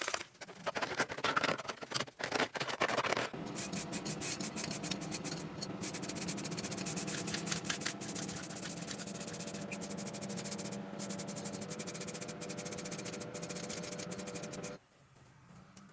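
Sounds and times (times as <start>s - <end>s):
abrasive rubbing on rusty metal: 3.4s - 14.8s
steady low hum: 3.4s - 14.8s.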